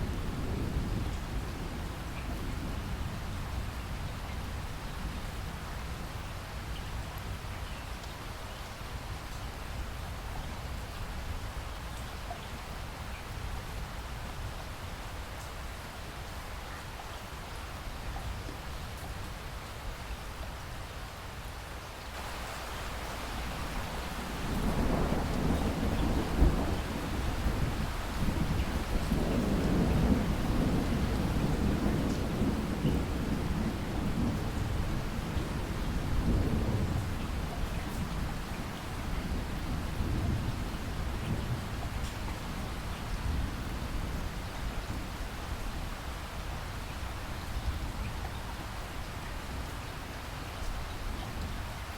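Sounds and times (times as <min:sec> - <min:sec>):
rain falling: 0:00.0 - 0:51.9
thunder rumbling: 0:22.2 - 0:37.5.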